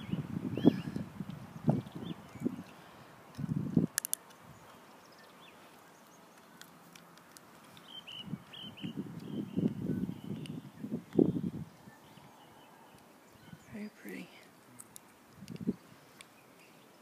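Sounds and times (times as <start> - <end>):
small bird chirping: 7.6 - 14.8.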